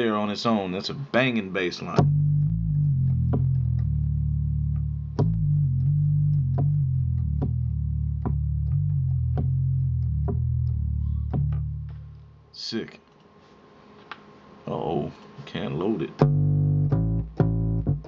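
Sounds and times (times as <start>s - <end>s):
synth bass line: 2.0s - 12.1s, 16.2s - 18.0s.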